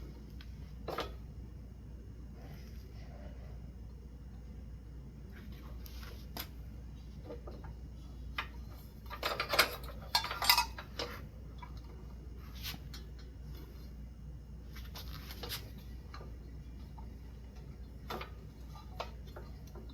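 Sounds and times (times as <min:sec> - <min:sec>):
metal hardware clinking: 0:08.4 - 0:11.2.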